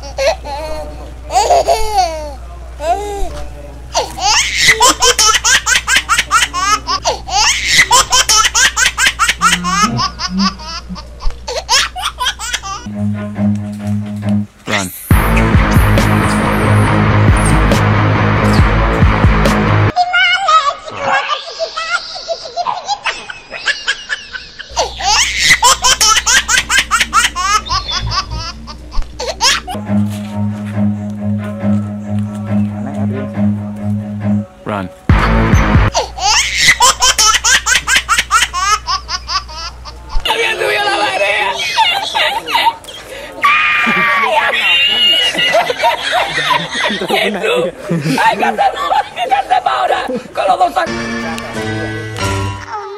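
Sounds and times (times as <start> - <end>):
high-pitched giggling: 4.0 - 12.9, 20.0 - 29.8
rapid child-like laughs: 4.0 - 12.9, 20.2 - 28.5, 41.5 - 50.6.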